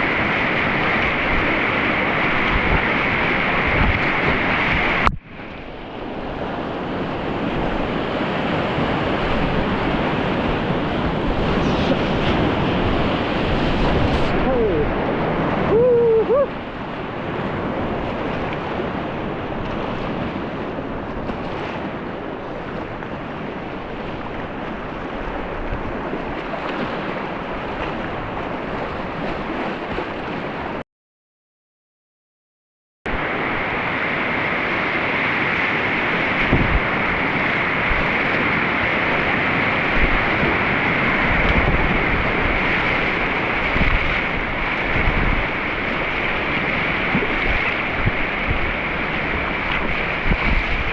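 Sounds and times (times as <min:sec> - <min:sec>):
whitewater rushing: 0:00.0 - 0:30.8, 0:33.1 - 0:50.9.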